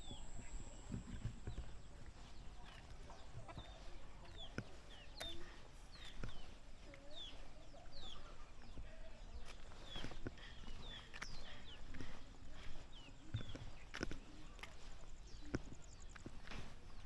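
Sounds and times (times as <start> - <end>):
sharp clicks: 2.6 - 6.5.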